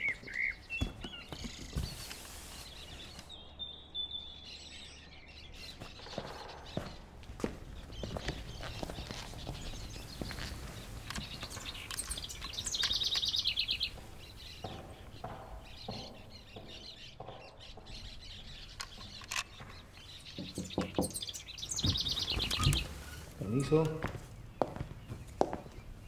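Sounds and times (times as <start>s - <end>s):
birds chirping: 0.0s - 26.0s
rapid high bird trill: 8.6s - 16.8s.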